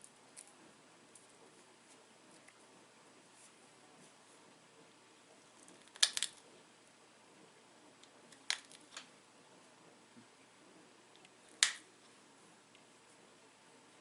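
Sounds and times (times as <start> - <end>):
stone flakes snapping clicks: 5.8 - 6.4, 8.4 - 9.1, 11.6 - 11.8.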